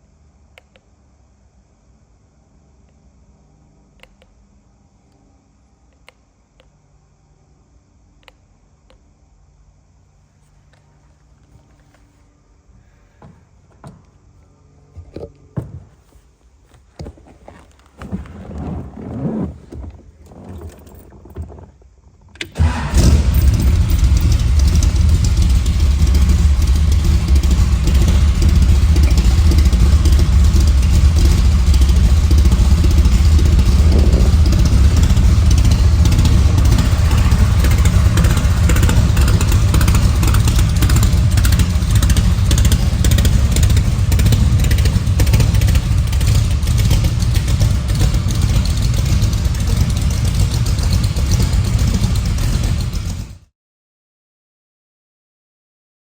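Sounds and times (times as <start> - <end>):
engine cranking: 18.0 - 53.4
car engine idling deeply: 22.6 - 53.4.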